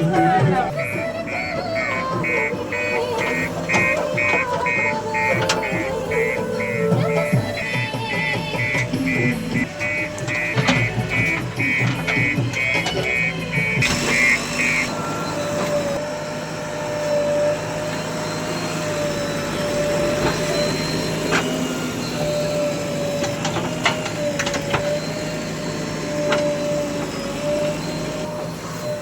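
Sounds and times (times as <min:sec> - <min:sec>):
continuous whine: 0:00.0 - 0:29.0
diesel earthmoving machinery running: 0:00.0 - 0:29.0.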